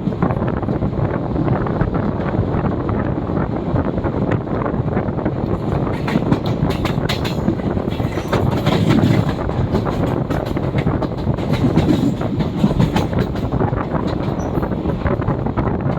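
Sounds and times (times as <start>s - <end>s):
train passing rumble: 0.0s - 15.9s
wheels clattering over rail joints: 5.5s - 15.5s.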